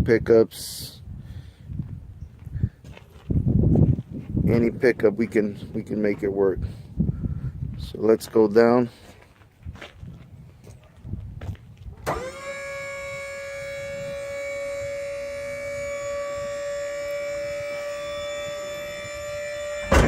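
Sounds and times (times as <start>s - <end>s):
hydraulic pump motor whine: 12.0s - 20.0s
pump switch click: 12.1s - 12.4s.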